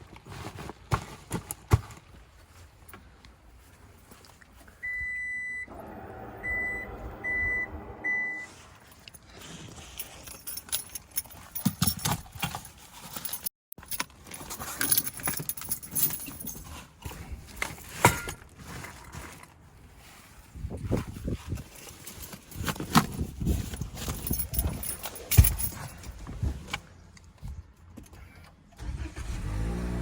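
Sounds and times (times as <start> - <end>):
electronic beeps: 6.4 - 8.5.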